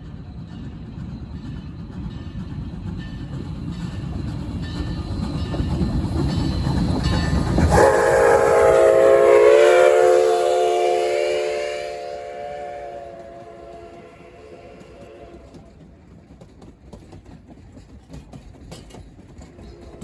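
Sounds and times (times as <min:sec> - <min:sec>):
train rumbling: 0:00.0 - 0:20.0
train horn chord: 0:07.7 - 0:15.6.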